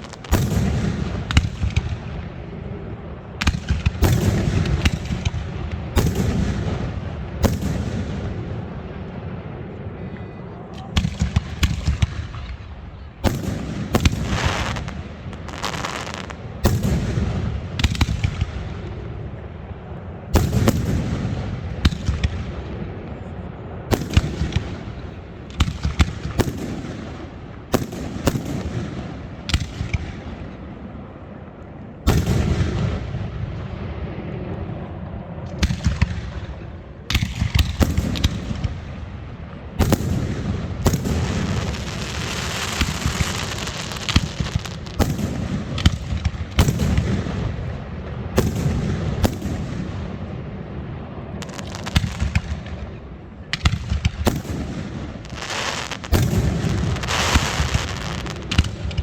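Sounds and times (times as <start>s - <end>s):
fireworks hissing crackle: 0.0s - 1.5s, 13.9s - 16.4s, 40.8s - 47.8s, 54.3s - 59.0s
fireworks bangs and booms: 0.0s - 59.0s.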